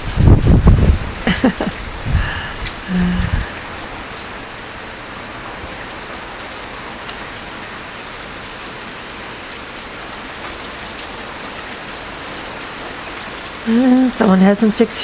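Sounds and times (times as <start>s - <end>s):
hard rain on hard surfaces: 0.0s - 15.0s
low rumble: 1.8s - 3.9s.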